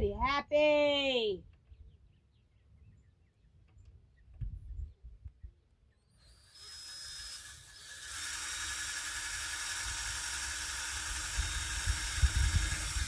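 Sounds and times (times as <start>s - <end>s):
power tool motor whine: 6.0s - 13.0s.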